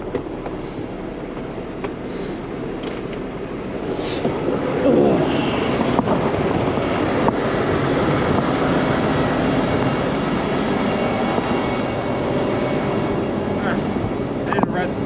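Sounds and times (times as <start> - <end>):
heavy truck engine running: 0.0 - 15.0.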